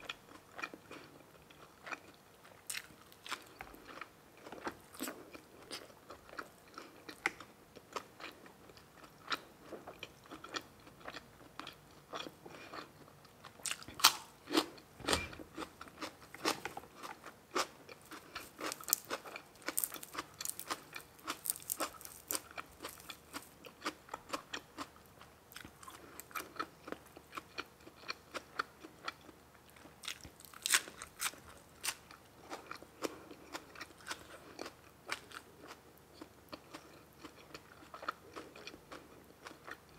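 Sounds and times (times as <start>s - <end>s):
person chewing food: 0.0s - 39.9s
loud crunches: 18.1s - 23.5s.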